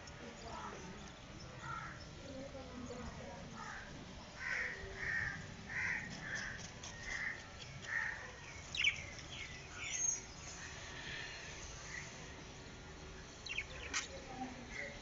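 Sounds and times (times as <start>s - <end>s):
budgerigars chirping: 8.6s - 10.3s, 13.4s - 14.2s.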